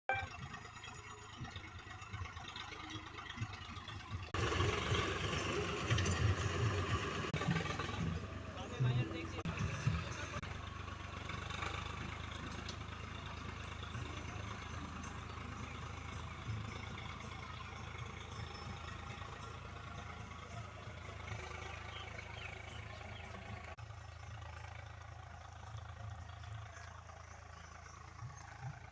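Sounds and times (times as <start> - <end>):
engine running at low speed: 0.1 - 28.9.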